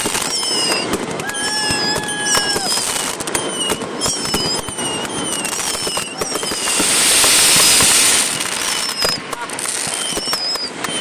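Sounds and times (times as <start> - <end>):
firework whistles: 0.0 - 11.0
fireworks bangs and crackling: 0.0 - 11.0
loud hissing rush: 5.4 - 10.2.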